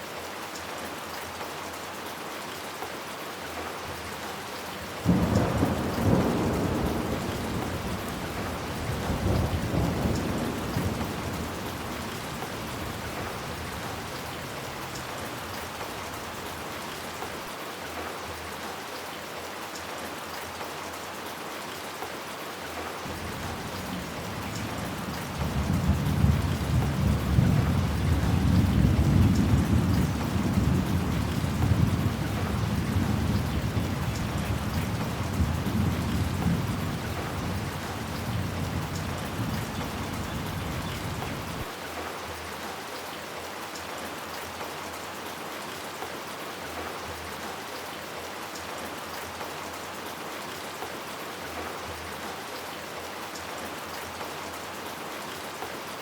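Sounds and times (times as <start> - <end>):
steady rain: 0.0 - 56.0
thunder rumbling: 5.0 - 14.5, 23.1 - 41.7.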